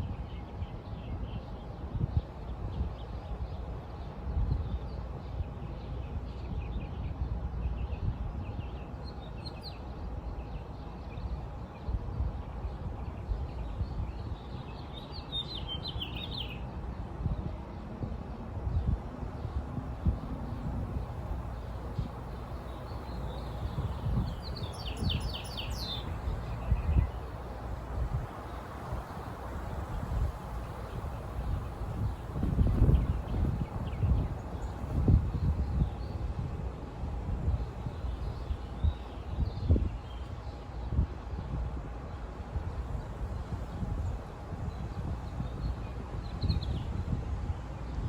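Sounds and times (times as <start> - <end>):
small birds chirping: 12.6 - 16.6, 19.4 - 36.2
steady low rumble: 17.0 - 46.2
small bird trill: 23.3 - 27.2.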